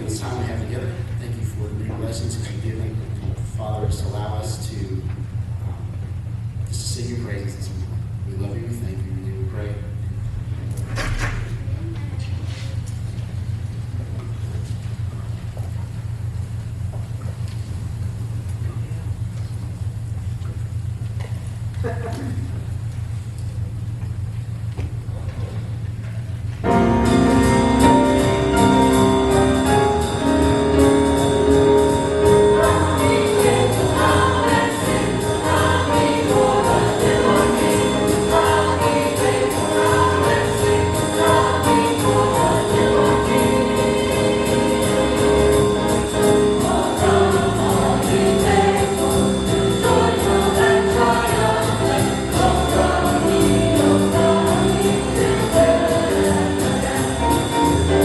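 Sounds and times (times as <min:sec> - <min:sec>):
choir singing jazz-style: 0:00.0 - 0:00.8, 0:26.6 - 0:58.0
instrumental accompaniment: 0:26.7 - 0:58.0.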